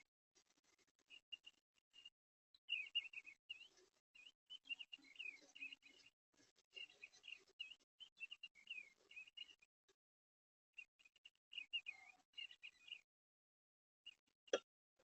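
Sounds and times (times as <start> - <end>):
songbird chirping and warbling: 0.0 - 9.7, 10.8 - 13.1.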